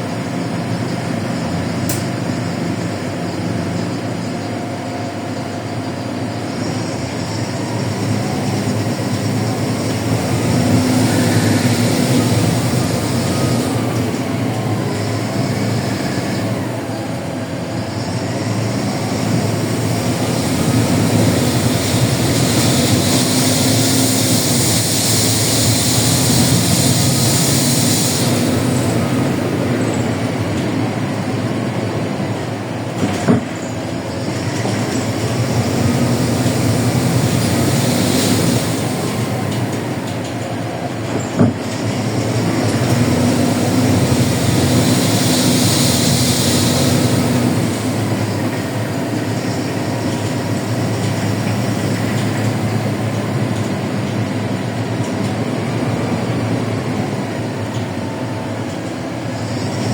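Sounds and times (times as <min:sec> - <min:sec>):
bus diesel engine running: 0:00.0 - 0:59.9
road and tyre noise: 0:00.0 - 0:59.9
hiss: 0:06.4 - 0:31.4, 0:33.0 - 0:55.2
whine rising and falling: 0:06.7 - 0:31.8, 0:41.9 - 0:53.8.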